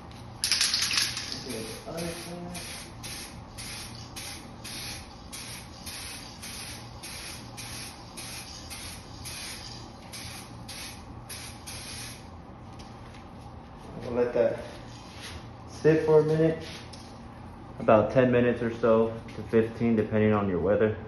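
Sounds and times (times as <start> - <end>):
aerosol spray hiss pulses: 1.6 - 12.3.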